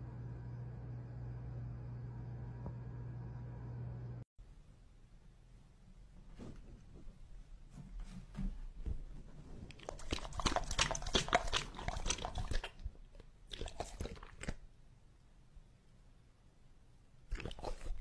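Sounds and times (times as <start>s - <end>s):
dog lapping from a glass bowl: 9.8s - 14.6s.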